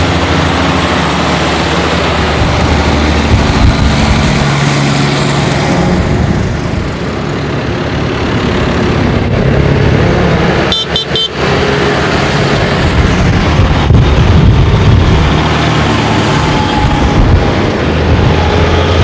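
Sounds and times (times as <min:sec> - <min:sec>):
tractor engines running: 0:00.0 - 0:19.0
high-pitched horn toots: 0:10.7 - 0:11.4.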